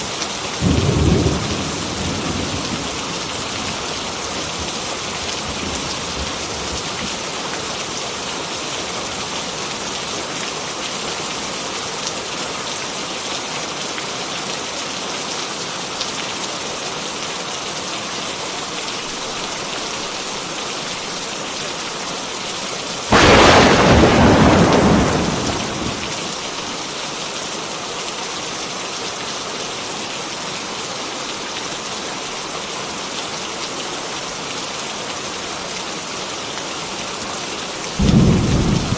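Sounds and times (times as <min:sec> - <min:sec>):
heavy rain: 0:00.0 - 0:38.9
thunder clap and rumble: 0:23.1 - 0:26.6, 0:38.0 - 0:38.9.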